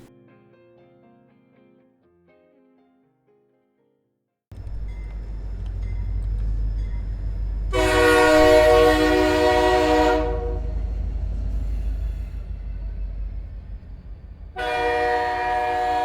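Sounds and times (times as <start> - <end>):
model train rumble: 4.5 - 16.0
train horn blast: 4.6 - 13.4, 14.3 - 16.0.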